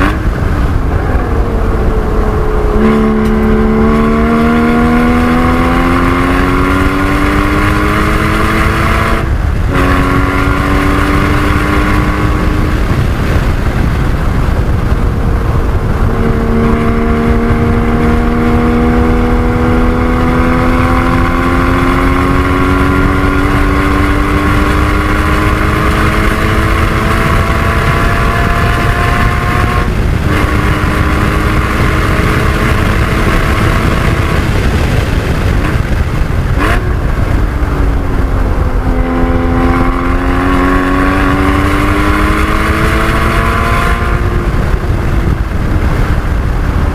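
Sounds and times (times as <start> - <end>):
road and wind noise: 0.0 - 46.9
sports car engine accelerating: 0.0 - 46.9.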